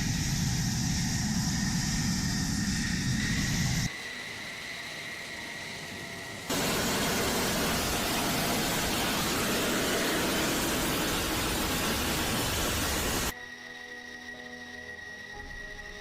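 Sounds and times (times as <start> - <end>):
loud rushing roar: 6.5 - 13.3.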